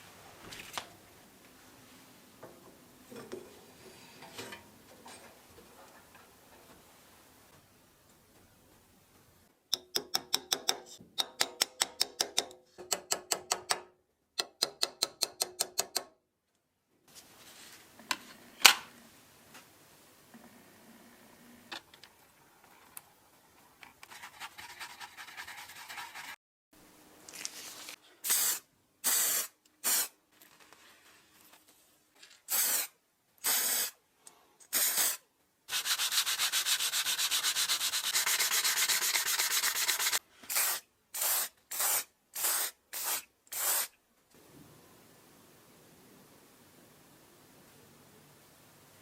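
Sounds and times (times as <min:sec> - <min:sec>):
hand sanding strokes: 0:24.1 - 0:26.4, 0:35.7 - 0:40.8.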